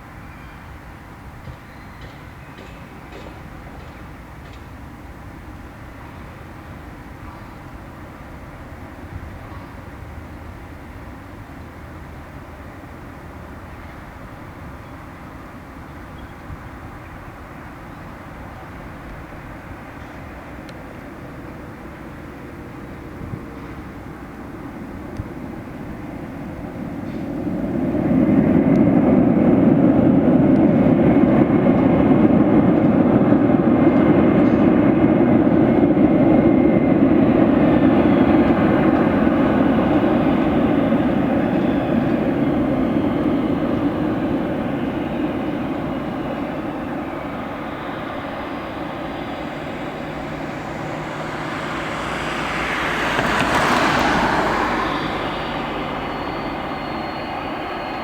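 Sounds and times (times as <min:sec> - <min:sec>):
jet engines roaring: 0:16.6 - 0:58.0
hissy swell: 0:43.5 - 0:58.0.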